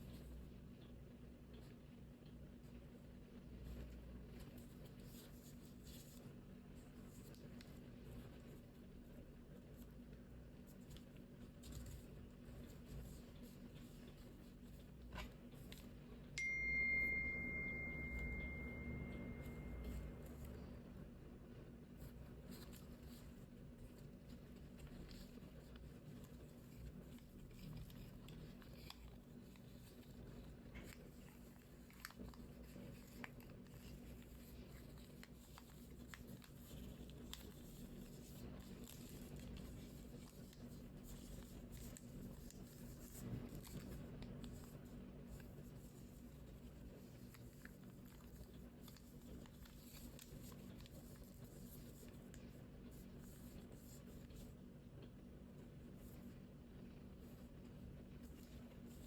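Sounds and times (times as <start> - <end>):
low steady hum: 0.0 - 59.0
paper rustling: 3.6 - 16.2, 21.9 - 54.7, 55.5 - 59.0
struck bell ding: 16.4 - 20.2.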